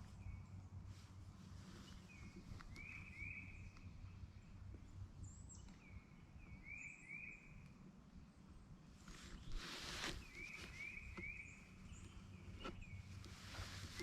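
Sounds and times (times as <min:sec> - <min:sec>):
low outdoor rumble: 0:00.0 - 0:14.0
songbird whistling upslurred notes: 0:02.1 - 0:03.8, 0:05.9 - 0:07.6, 0:09.4 - 0:14.0.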